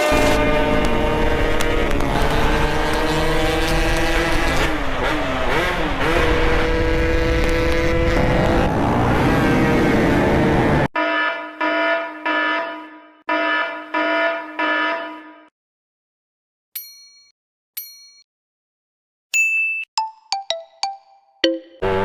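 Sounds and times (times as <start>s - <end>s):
motorcycle engine running hard: 0.0s - 10.8s.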